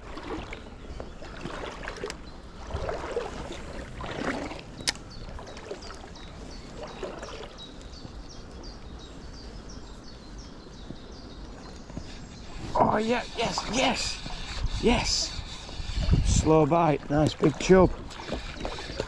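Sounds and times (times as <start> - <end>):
river water splashing: 0.0 - 7.9, 16.7 - 19.0.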